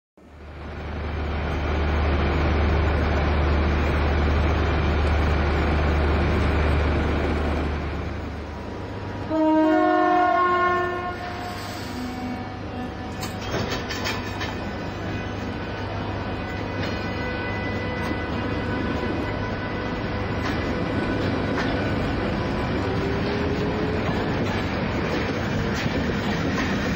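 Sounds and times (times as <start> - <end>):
train horn: 9.2 - 21.3.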